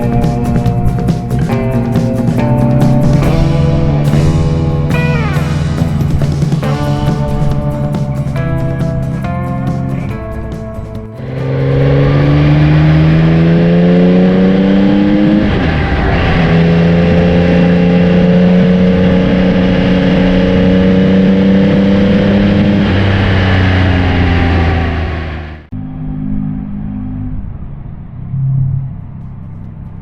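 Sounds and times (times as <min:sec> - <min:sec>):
background music: 0:00.0 - 0:15.5
wind noise: 0:00.0 - 0:25.7
motorcycle engine accelerating: 0:00.0 - 0:30.0.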